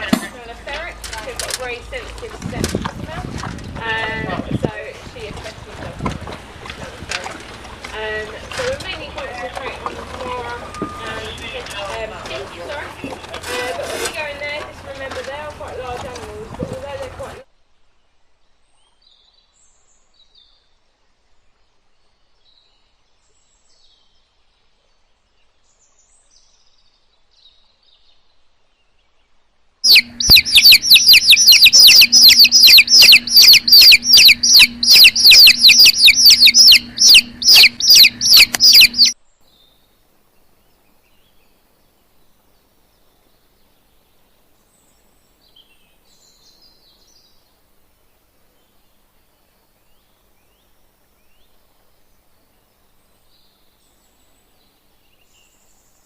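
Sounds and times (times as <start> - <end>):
steady low hum: 29.9 - 39.2
bird chirping: 29.9 - 47.5.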